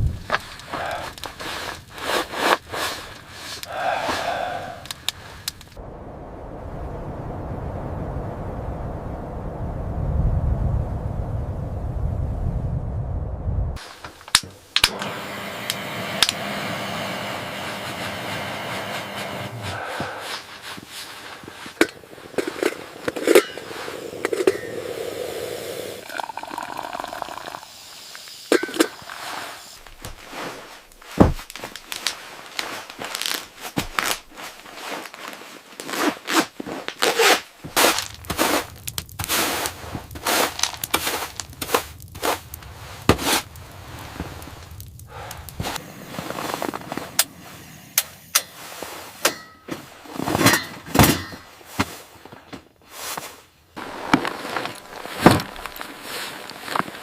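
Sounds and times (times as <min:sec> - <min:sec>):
sharp cracks knocks and scrapes: 0:00.1 - 0:03.7, 0:28.6 - 0:47.4, 0:48.0 - 0:57.0
steady noise: 0:37.5 - 0:49.7.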